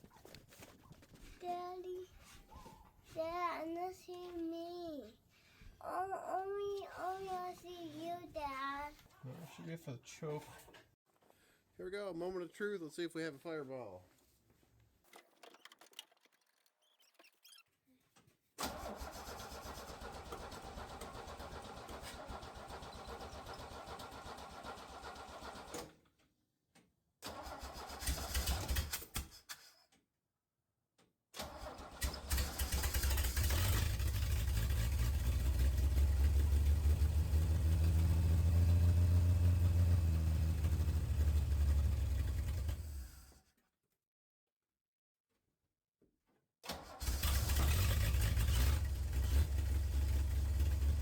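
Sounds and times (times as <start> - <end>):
starter motor cranking: 31.4 - 35.8, 46.7 - 50.9
engine running: 32.4 - 43.2, 47.0 - 51.0.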